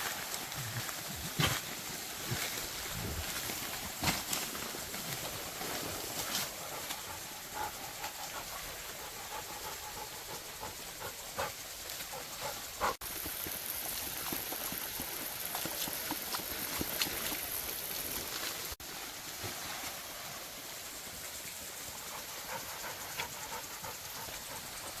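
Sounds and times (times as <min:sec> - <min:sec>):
outdoor background hiss: 0:00.0 - 0:25.0
dog panting: 0:06.5 - 0:18.0, 0:22.0 - 0:25.0.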